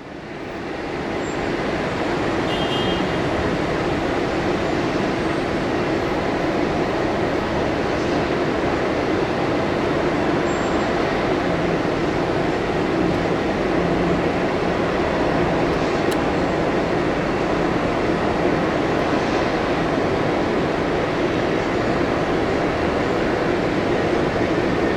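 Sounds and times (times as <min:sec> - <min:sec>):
jet engines rushing: 0:03.3 - 0:24.9.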